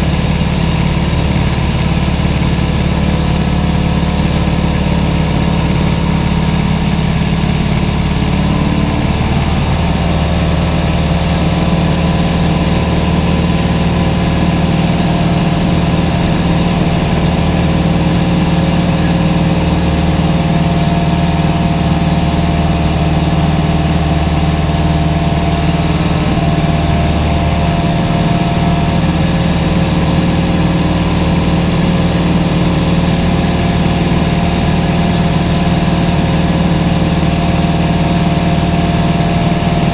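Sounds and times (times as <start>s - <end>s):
propeller aircraft engine droning: 0.0s - 39.9s.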